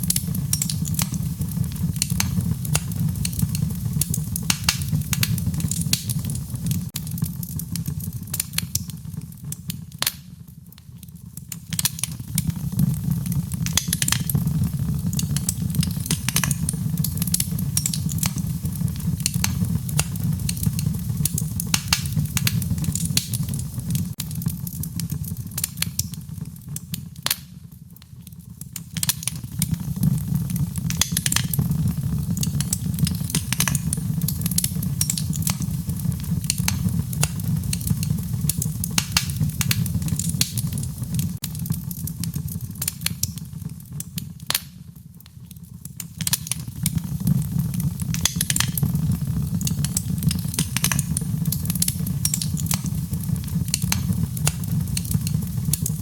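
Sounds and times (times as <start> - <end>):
fire crackling and popping: 0.0 - 56.0
fire rumbling: 0.0 - 56.0.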